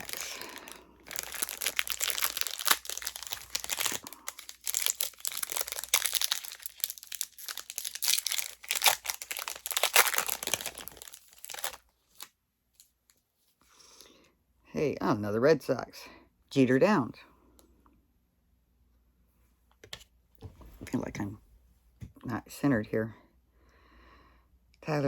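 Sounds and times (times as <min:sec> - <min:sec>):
card pack wrappers crinkling: 0:00.0 - 0:12.3.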